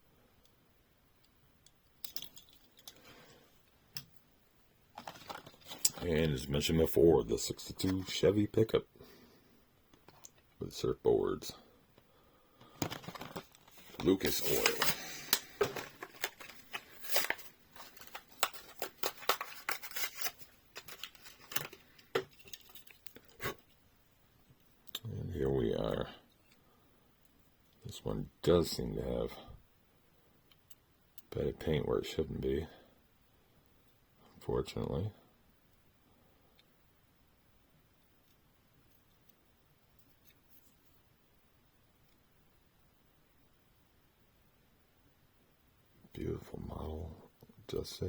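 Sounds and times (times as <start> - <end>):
plastic packaging rustling: 4.9 - 6.2, 12.6 - 23.4.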